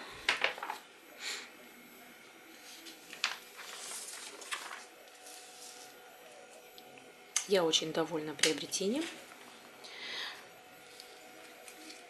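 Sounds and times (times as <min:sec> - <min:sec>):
glossy paper rustling: 0:02.5 - 0:06.7.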